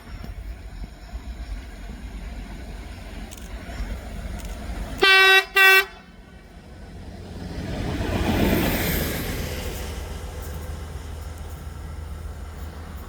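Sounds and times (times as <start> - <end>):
train passing: 0.0 - 13.0
train horn blasts: 5.0 - 6.2.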